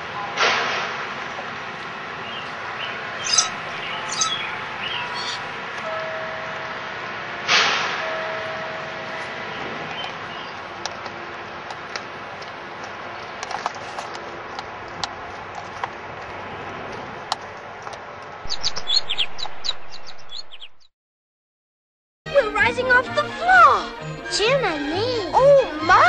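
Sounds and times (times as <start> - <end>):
small birds chirping: 2.2 - 5.6, 18.5 - 20.9.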